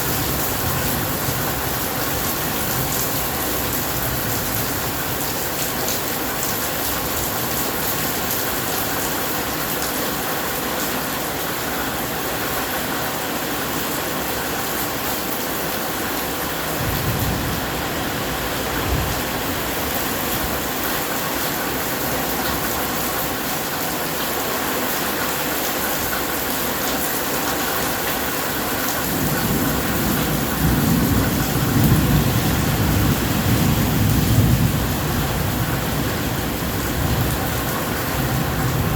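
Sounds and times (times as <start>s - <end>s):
steady rain: 0.0s - 38.9s
thunder rumbling: 16.6s - 21.0s, 29.0s - 38.9s.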